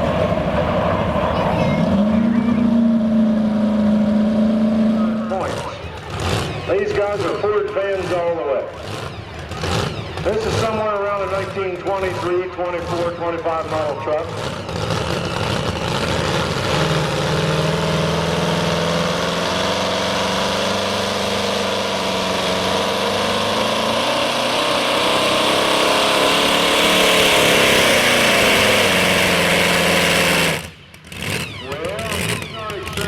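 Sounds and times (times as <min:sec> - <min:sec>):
truck engine droning under load: 0:00.0 - 0:33.0.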